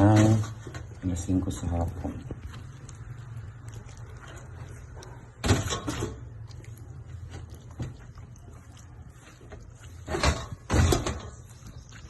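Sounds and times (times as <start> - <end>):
kitchen knocks and rustles: 5.3 - 6.3, 9.5 - 11.6.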